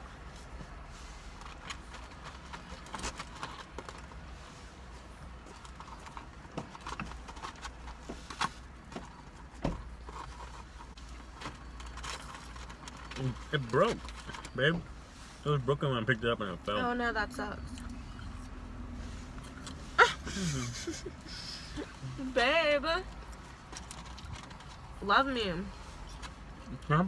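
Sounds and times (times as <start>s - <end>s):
people chewing food: 0.1s - 14.9s, 17.6s - 22.2s, 23.1s - 24.9s.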